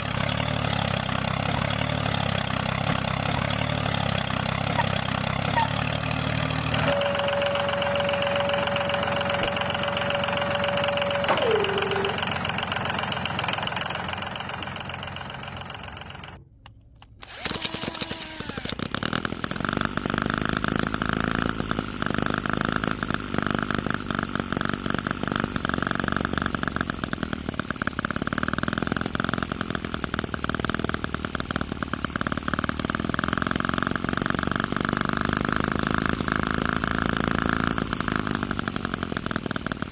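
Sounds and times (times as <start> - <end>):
model engine running: 0.0 - 16.4, 17.0 - 39.9
whine dropping in pitch: 6.7 - 12.4.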